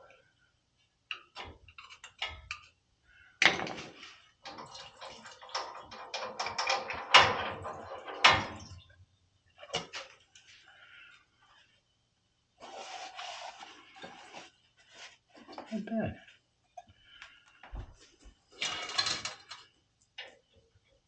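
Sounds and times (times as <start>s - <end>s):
metal tools clinking and clattering: 18.6s - 19.7s.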